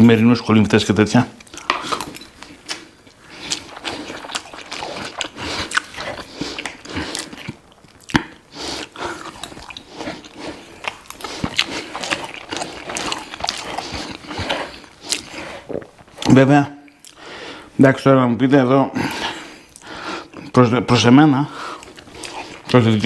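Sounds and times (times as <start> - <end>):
close chewing with wet smacks: 1.4 - 16.3.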